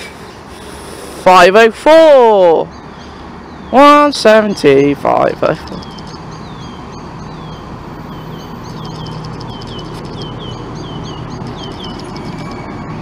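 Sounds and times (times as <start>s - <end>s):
small bird chirping: 2.6s - 12.9s.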